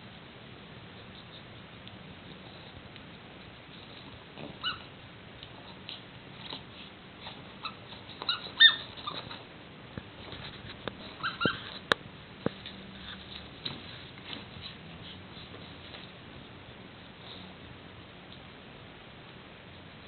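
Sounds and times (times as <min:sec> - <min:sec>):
squeaky toy squeaks: 0:04.6 - 0:04.8, 0:07.6 - 0:09.4, 0:11.0 - 0:11.8
soft scuffling: 0:05.6 - 0:17.4.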